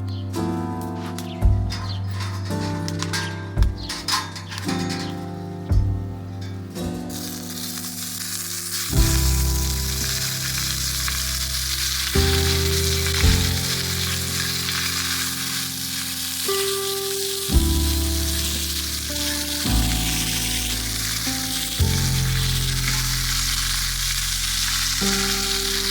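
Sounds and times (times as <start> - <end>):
background music with low notes: 0.0 - 25.9
food sizzling while frying: 7.0 - 25.9.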